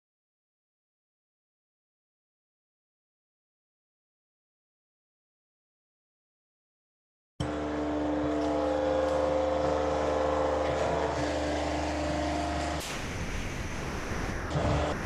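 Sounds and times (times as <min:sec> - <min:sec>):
machinery humming with held tones: 0:07.4 - 0:15.0
rough hissy machine noise: 0:07.4 - 0:15.0.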